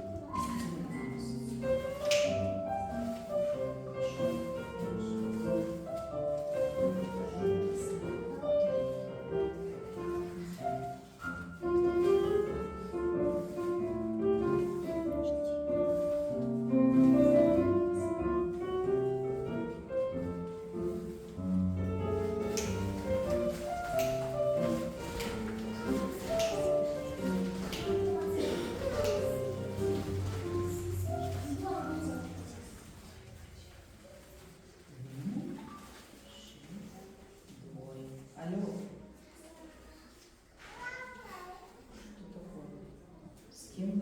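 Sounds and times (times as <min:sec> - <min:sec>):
classical piano music: 0:00.0 - 0:33.2.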